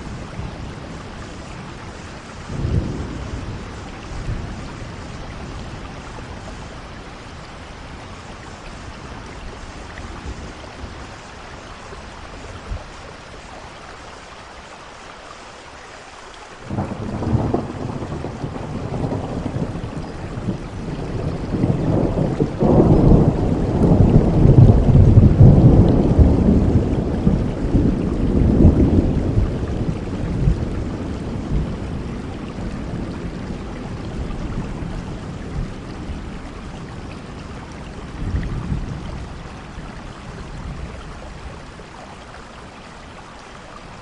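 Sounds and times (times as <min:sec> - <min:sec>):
thunder rumbling: 0:00.0 - 0:11.4, 0:16.6 - 0:41.8
steady rain: 0:00.0 - 0:44.0.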